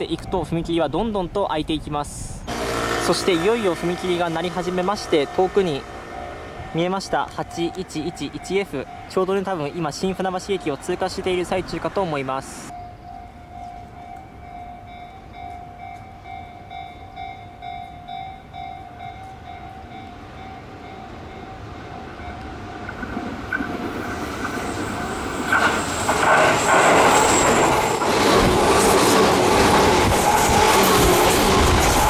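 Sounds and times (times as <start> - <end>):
wheels squealing on rails: 2.5 - 17.4, 19.2 - 32.0
train passing at speed: 2.5 - 32.0
level crossing bell ringing: 2.6 - 10.5.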